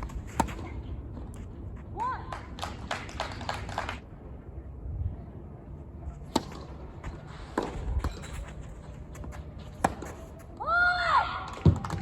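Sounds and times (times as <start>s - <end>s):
tennis ball struck and bouncing: 6.3s - 6.7s.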